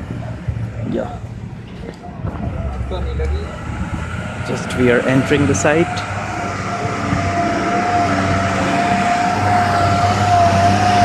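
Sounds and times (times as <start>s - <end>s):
vehicle engine hum: 0.0s - 11.0s
high-pitched whine: 2.3s - 11.0s.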